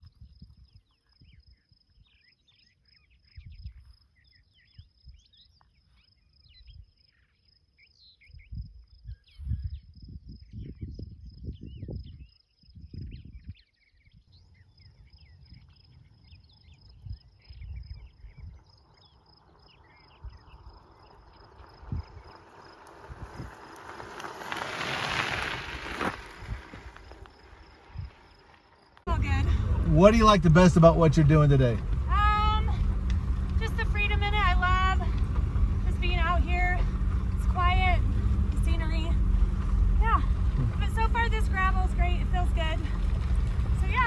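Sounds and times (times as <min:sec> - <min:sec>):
low rumbles: 0:29.1 - 0:44.0.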